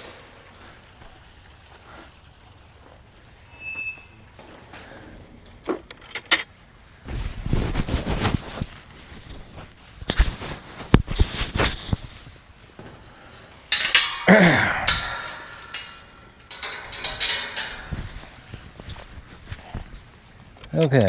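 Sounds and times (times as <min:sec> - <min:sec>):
metallic clanking and rattling: 0:12.9 - 0:20.2.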